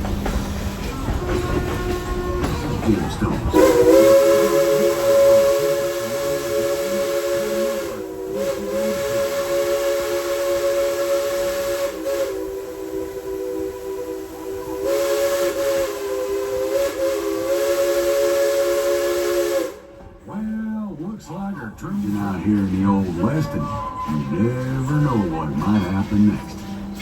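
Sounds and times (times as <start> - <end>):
steam locomotive chime whistle: 0.9 - 20.0, 22.0 - 27.0.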